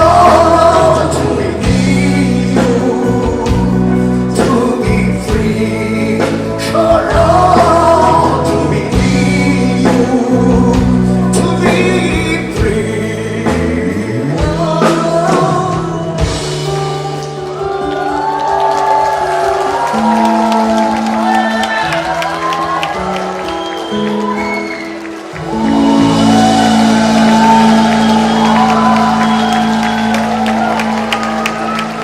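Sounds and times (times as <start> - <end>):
choir-like singing: 0.0 - 3.7
live band playing: 0.0 - 32.0.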